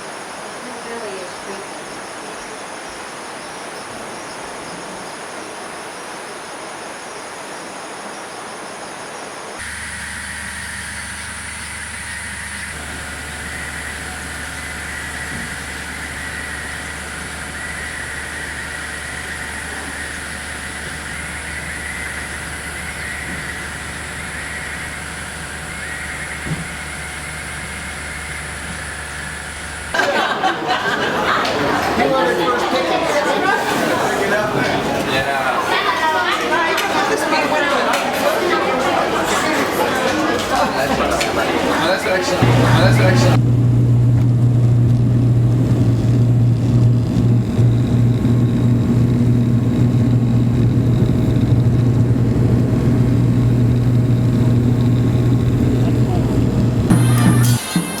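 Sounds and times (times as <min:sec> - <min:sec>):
vehicle engine droning: 0:09.6 - 0:30.0, 0:40.4 - 0:58.0
people chattering in a large room: 0:29.9 - 0:43.4.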